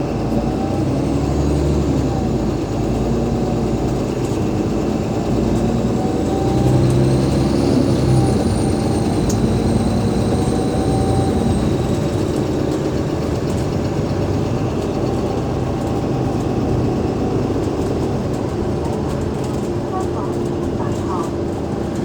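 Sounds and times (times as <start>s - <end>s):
bus diesel engine running: 0.0s - 22.0s.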